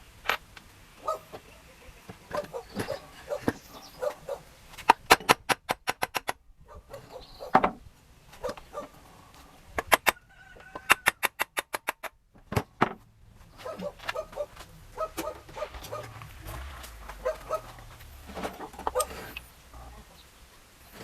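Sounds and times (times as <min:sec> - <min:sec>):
hand tool clicking: 0:04.8 - 0:06.4, 0:09.8 - 0:10.2, 0:10.8 - 0:12.2.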